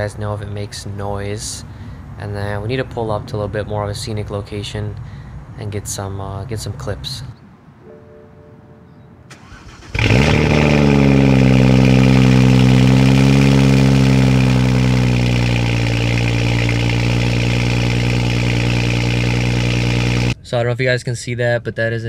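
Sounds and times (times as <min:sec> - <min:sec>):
car engine starting and idling: 0:09.3 - 0:20.4.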